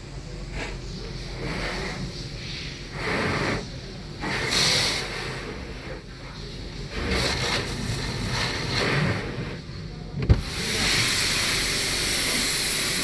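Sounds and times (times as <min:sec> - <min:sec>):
hose water spray hissing: 0:10.4 - 0:13.0.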